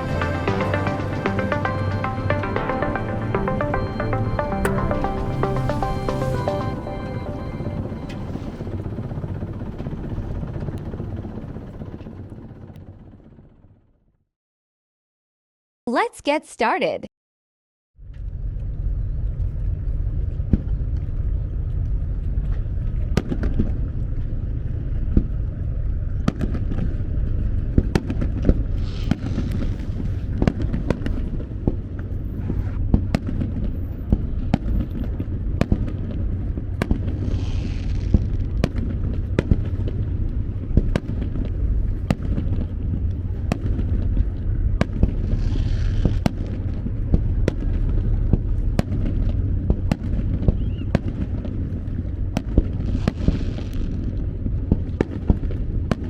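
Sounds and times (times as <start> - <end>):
low rumble: 0.0 - 13.1, 18.0 - 55.0
fireworks hissing crackle: 28.7 - 30.2, 37.1 - 38.6, 45.1 - 46.2, 52.8 - 54.1
fireworks bangs: 32.9 - 41.5, 52.4 - 54.1.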